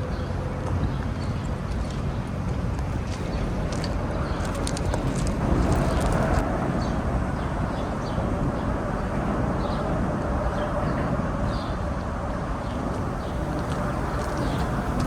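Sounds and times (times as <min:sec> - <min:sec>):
city traffic rumble: 0:00.0 - 0:15.0
small birds chirping: 0:12.6 - 0:15.0.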